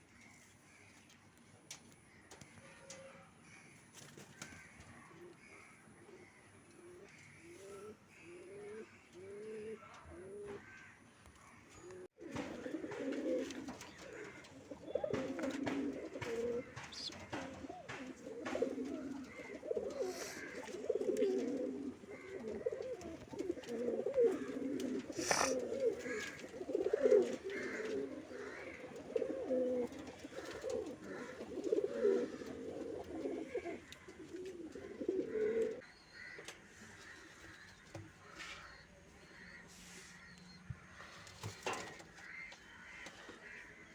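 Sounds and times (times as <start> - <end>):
pigeons cooing: 4.4 - 10.9, 11.8 - 36.4.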